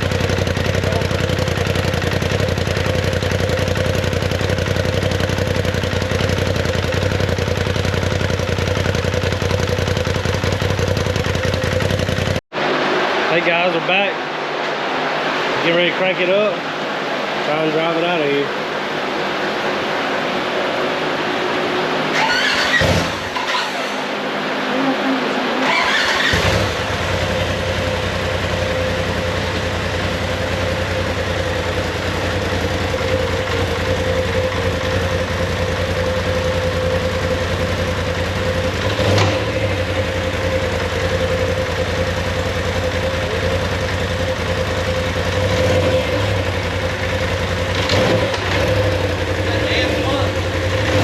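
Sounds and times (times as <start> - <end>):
engine cranking and idling: 0.0 - 12.4, 22.1 - 24.3, 25.6 - 51.0.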